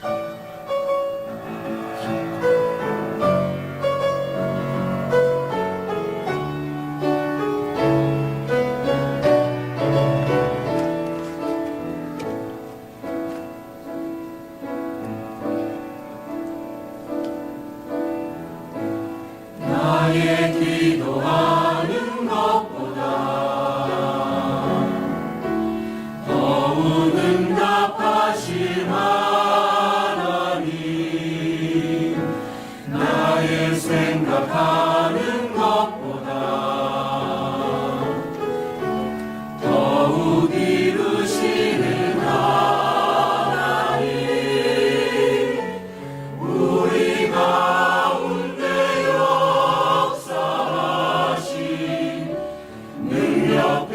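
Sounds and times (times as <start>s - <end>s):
church choir singing: 0.0s - 12.6s, 17.0s - 53.9s
piano accompaniment: 0.0s - 53.9s.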